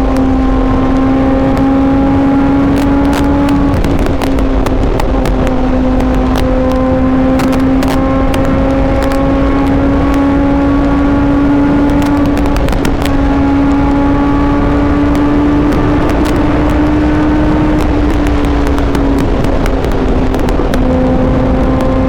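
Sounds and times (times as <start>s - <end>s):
heavy wind rush: 0.0s - 22.0s
motorcycle engine at high revs: 0.0s - 22.0s.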